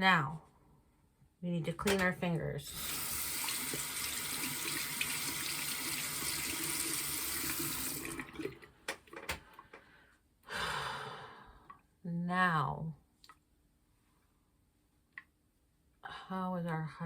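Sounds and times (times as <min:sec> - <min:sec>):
tap water running into sink: 0:02.7 - 0:09.4.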